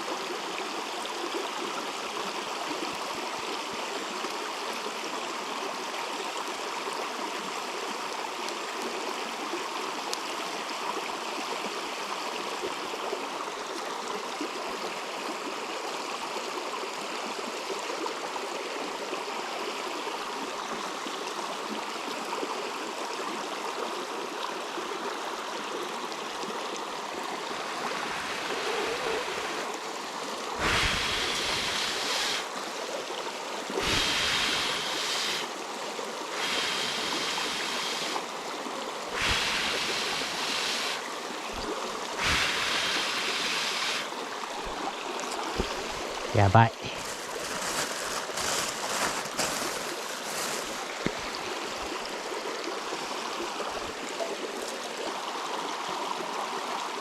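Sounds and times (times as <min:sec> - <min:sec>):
river flowing: 0:00.0 - 0:57.0.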